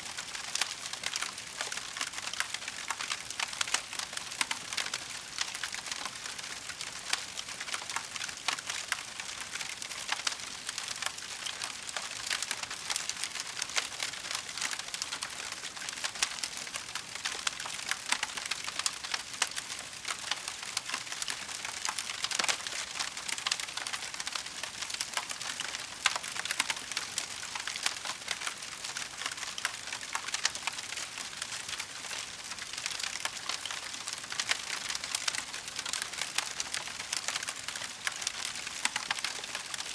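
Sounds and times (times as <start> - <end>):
wood fire crackling: 16.9 - 39.9.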